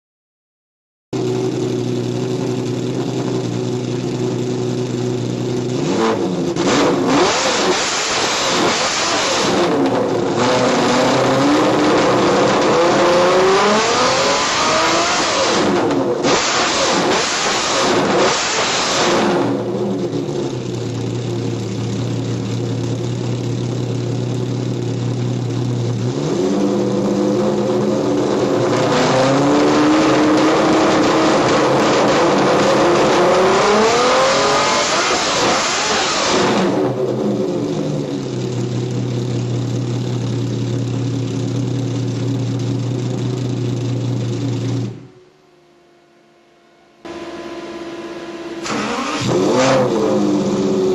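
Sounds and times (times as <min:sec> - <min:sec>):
sports car engine idling: 0:01.2 - 0:06.7, 0:19.5 - 0:26.2, 0:36.8 - 0:48.6
sports car engine revving: 0:01.2 - 0:50.9.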